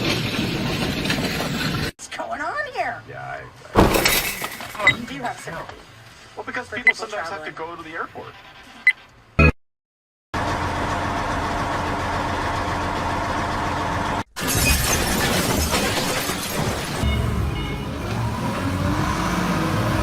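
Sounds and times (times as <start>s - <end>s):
engine and road noise: 0.0s - 9.4s, 10.4s - 20.0s
crunching and shattering collision: 3.8s - 5.1s, 14.4s - 17.2s.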